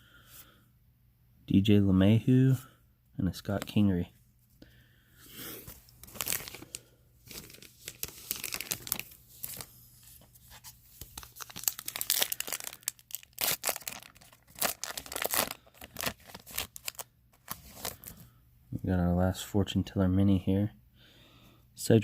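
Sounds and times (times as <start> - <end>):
foil wrapper tearing and crinkling: 6.0 - 9.7, 11.0 - 18.2.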